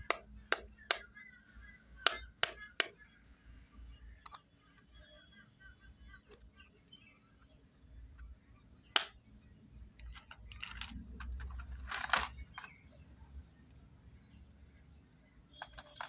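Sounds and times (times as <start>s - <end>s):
plastic toy click: 0.0s - 1.1s, 2.1s - 3.0s
plastic pieces scraping: 10.1s - 12.8s, 15.6s - 16.0s.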